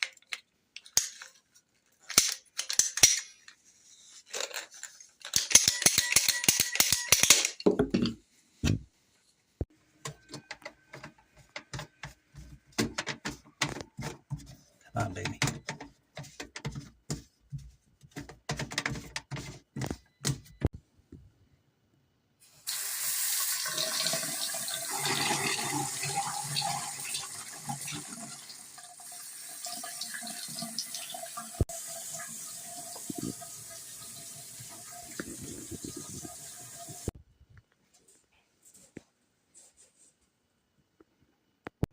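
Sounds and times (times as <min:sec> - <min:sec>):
faucet running water into sink: 0:22.7 - 0:37.1.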